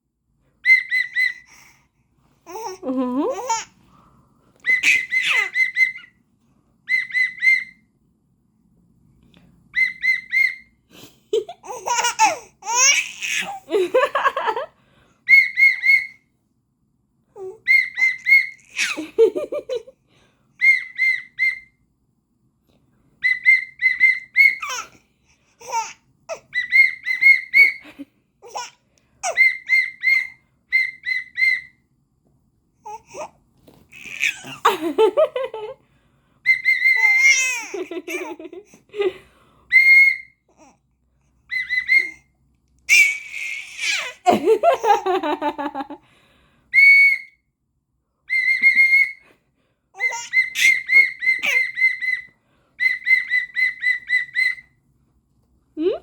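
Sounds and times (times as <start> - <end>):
baby laughing: 2.5 - 3.7, 4.6 - 6.1, 11.4 - 14.7, 17.4 - 19.9, 24.4 - 25.0, 25.6 - 30.3, 33.9 - 35.8, 36.8 - 38.9, 42.9 - 45.9, 50.0 - 52.2
whistle short toots: 46.8 - 47.4, 48.4 - 49.2.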